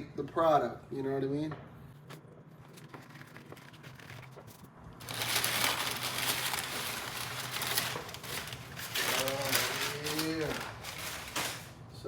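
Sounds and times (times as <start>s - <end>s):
plastic packaging crinkling: 2.6s - 11.9s.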